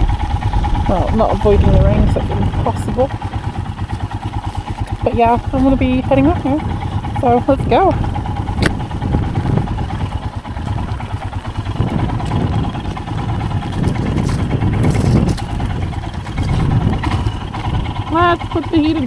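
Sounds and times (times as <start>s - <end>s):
motorcycle engine pulling away: 0.0s - 19.0s
sharp click: 8.6s - 8.8s.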